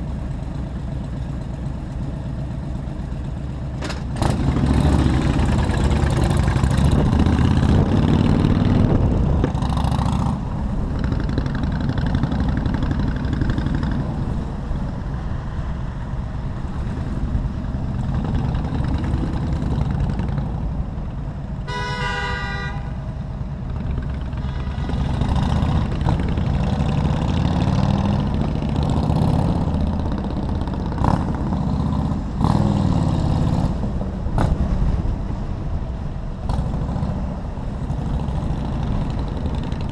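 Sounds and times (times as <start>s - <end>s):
motorcycle engine running: 0.0s - 14.7s, 16.9s - 32.8s, 37.8s - 39.9s
road and wind noise: 0.0s - 39.9s
vehicle horn honking: 21.6s - 23.0s, 24.4s - 25.2s.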